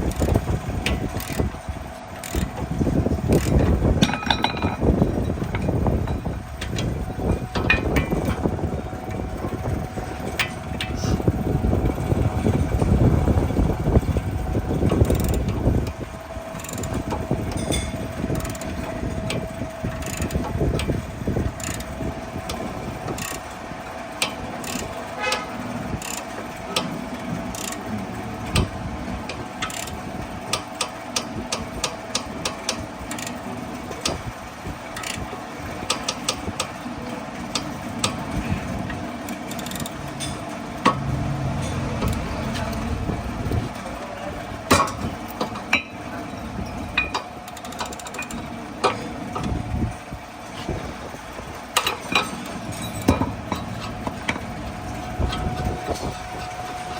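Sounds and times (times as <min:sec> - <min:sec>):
steady low hum: 0:00.0 - 0:56.9
tools clinking on wheel bolts: 0:03.4 - 0:06.9, 0:51.8 - 0:54.4.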